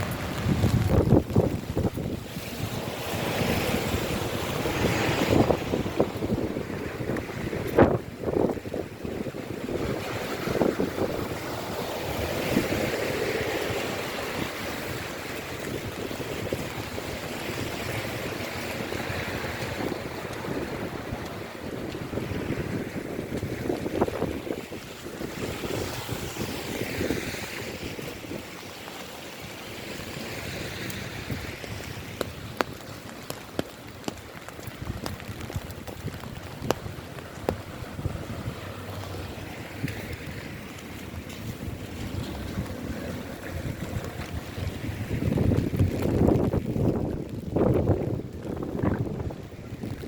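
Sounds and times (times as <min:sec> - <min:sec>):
heavy raindrops tapping: 0:00.0 - 0:02.2, 0:30.0 - 0:50.0
steady rain: 0:00.0 - 0:50.0.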